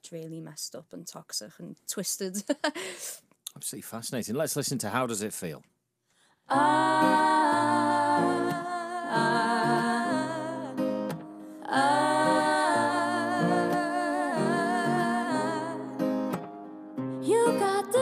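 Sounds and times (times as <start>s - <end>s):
woman's wordless singing: 6.5s - 10.9s, 11.6s - 16.0s, 17.2s - 18.0s
acoustic guitar: 6.5s - 18.0s.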